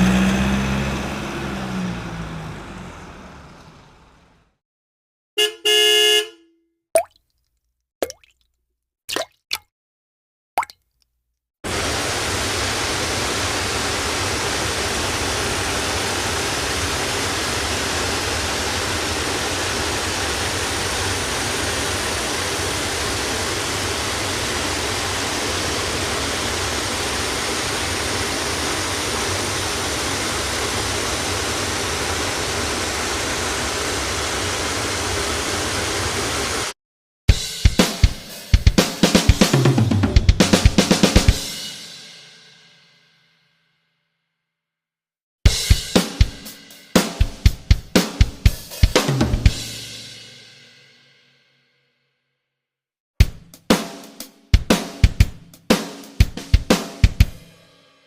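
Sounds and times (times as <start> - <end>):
steady rushing noise: 11.7 - 36.7.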